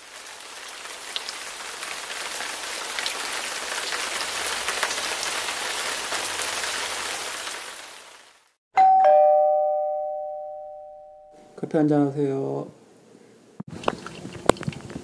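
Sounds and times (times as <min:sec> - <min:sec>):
steady rain falling: 0:00.0 - 0:08.6.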